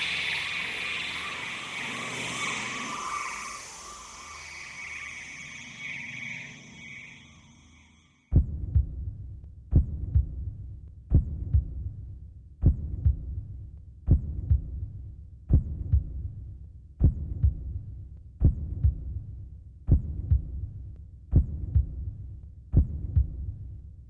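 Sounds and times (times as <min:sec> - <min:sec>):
low hum: 0:00.0 - 0:07.8
heartbeat thumps: 0:08.3 - 0:16.4, 0:17.0 - 0:19.3, 0:19.9 - 0:23.7.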